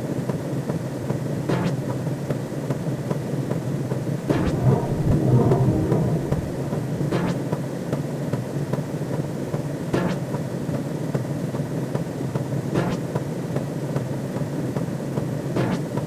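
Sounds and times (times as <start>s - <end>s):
bright swell: 4.3s - 7.5s
low rumble: 4.3s - 7.6s.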